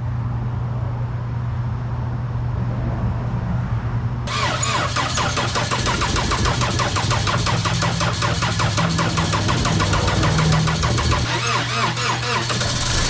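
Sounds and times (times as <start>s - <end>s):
engine cranking by starter: 4.3s - 13.0s
low hum: 4.3s - 13.0s.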